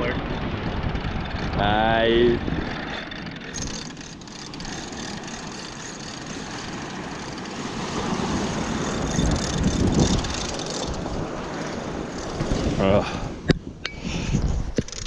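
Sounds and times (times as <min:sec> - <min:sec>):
wind on microphone: 0:00.0 - 0:03.9, 0:07.7 - 0:15.0
surf washing: 0:00.0 - 0:13.5.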